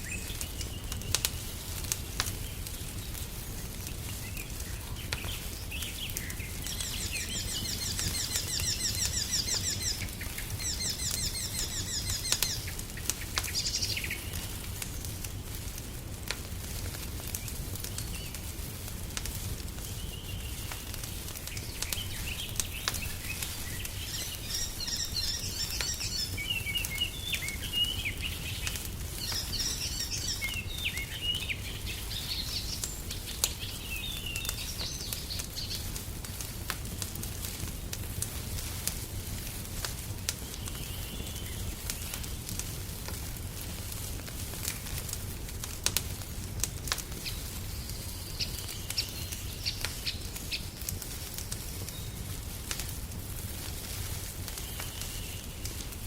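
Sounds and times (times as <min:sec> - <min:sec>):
songbirds singing: 0:00.0 - 0:16.0, 0:19.6 - 0:36.4, 0:40.2 - 0:42.6, 0:46.8 - 0:52.4, 0:54.5 - 0:56.0
wood fire crackling: 0:00.0 - 0:56.0.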